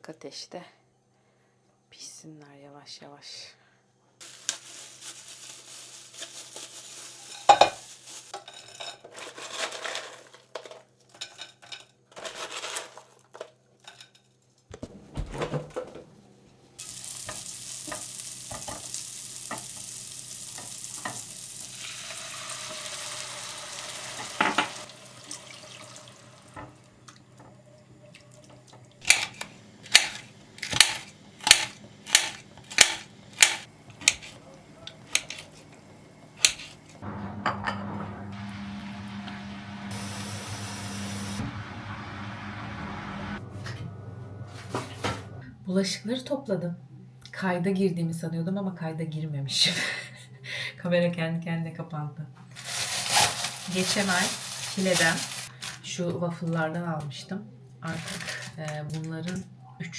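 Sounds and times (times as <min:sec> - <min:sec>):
chicken sizzling in a pan: 0:04.2 - 0:08.4, 0:16.8 - 0:27.0, 0:37.4 - 0:43.4, 0:52.6 - 0:55.5
pots and utensils clattering: 0:04.4 - 0:14.3, 0:16.8 - 0:26.8, 0:28.5 - 0:34.4, 0:36.4 - 0:38.8.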